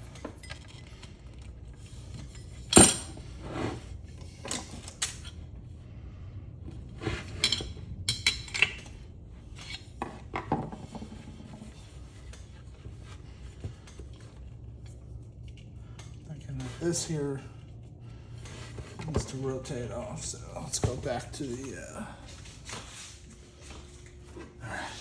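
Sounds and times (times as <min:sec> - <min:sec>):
metal clinks and knocks: 0:00.1 - 0:03.3.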